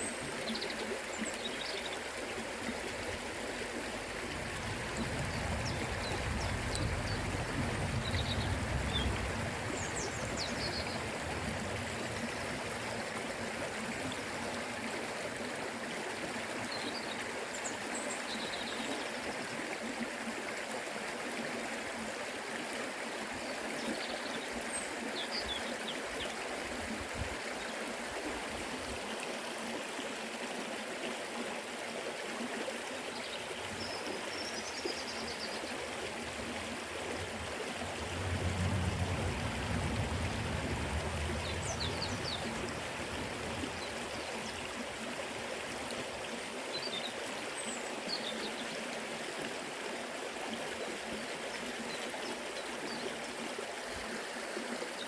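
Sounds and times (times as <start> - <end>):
river flowing over rocks: 0.0 - 55.0
low rumble: 37.0 - 43.9.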